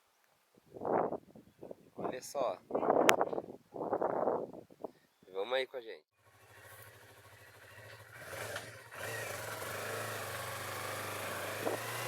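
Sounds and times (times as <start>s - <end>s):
motorcycle engine running: 6.2s - 12.0s.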